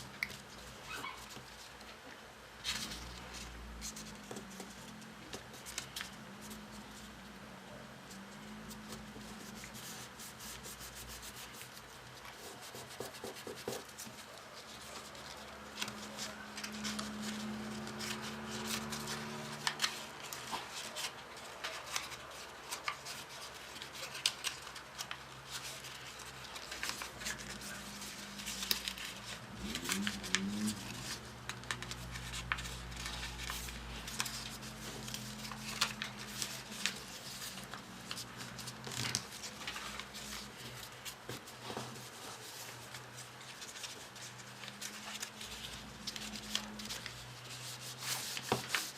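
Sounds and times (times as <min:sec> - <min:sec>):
paper rustling and creasing: 0:00.0 - 0:07.1, 0:08.1 - 0:48.9.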